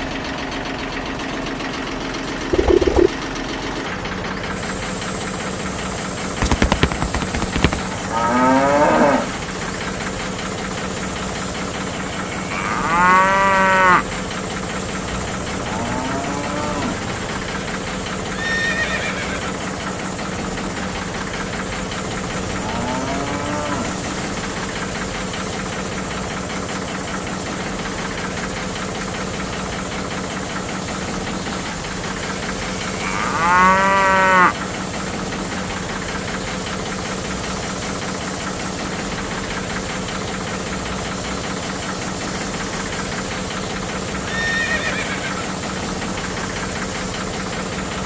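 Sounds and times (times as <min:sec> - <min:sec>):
motor hum and hiss: 0:02.5 - 0:03.1, 0:04.5 - 0:09.7, 0:10.3 - 0:26.3
quick run of clicks: 0:02.6 - 0:03.2, 0:06.4 - 0:08.4
cow mooing: 0:08.0 - 0:09.4, 0:12.4 - 0:14.1, 0:15.3 - 0:17.4, 0:22.3 - 0:24.4, 0:33.0 - 0:34.6.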